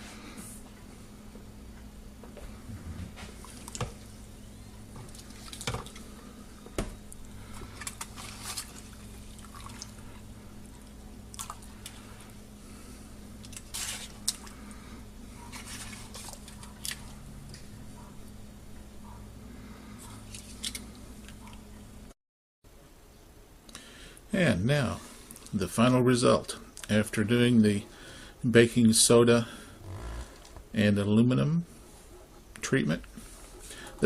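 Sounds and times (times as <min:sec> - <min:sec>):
steady low hum: 0:00.0 - 0:22.1, 0:22.7 - 0:34.0
drips and wet clicks: 0:10.8 - 0:12.0.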